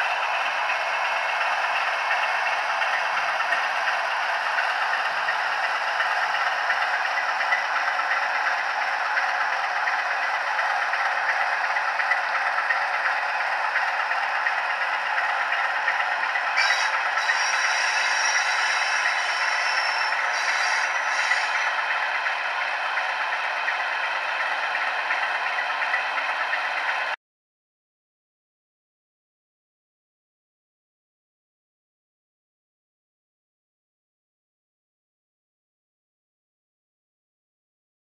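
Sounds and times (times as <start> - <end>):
model locomotive rattling: 0.0 - 27.2
high-pitched whine: 16.5 - 22.0.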